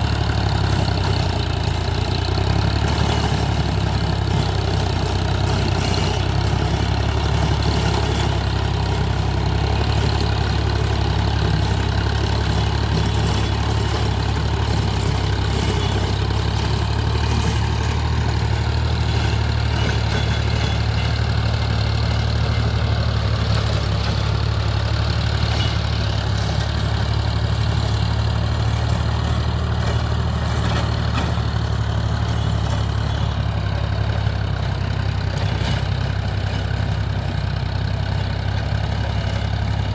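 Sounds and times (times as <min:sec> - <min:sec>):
tractor diesel engine drone: 0:00.0 - 0:39.9.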